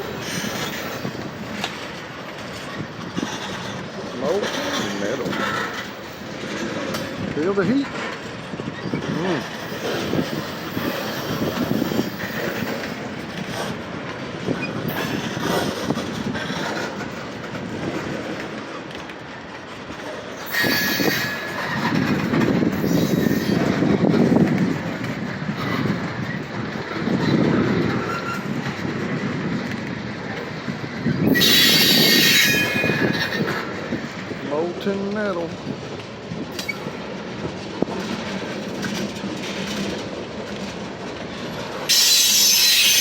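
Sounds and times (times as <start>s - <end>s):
freight train wheels clattering: 0.0s - 43.0s
high-pitched wheel squeals: 20.5s - 21.7s, 31.3s - 33.5s, 41.9s - 43.0s.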